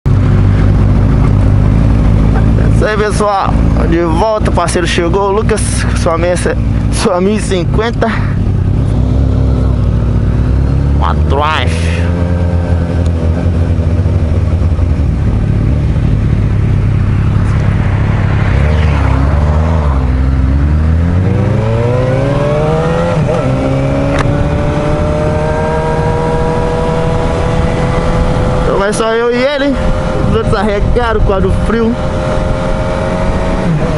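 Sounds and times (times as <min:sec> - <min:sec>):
motorcycle engine accelerating: 0:00.1 - 0:33.9
wind noise: 0:12.1 - 0:33.9.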